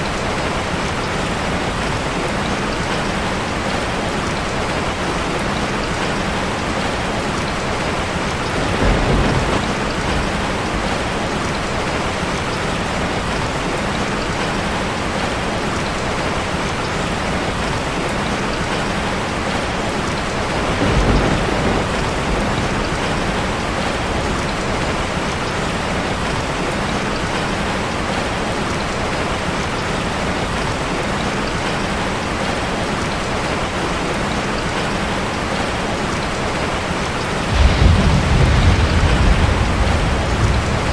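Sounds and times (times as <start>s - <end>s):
heavy rain on a metal roof: 0.0s - 40.9s
low rumbles: 37.5s - 40.9s.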